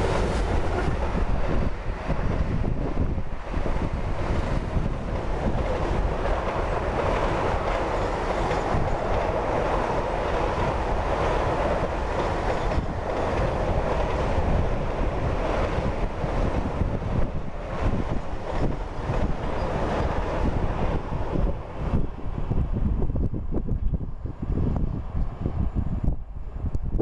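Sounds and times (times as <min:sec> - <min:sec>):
steel wheels on rails: 0:00.0 - 0:23.6
freight train rolling past: 0:00.0 - 0:26.9.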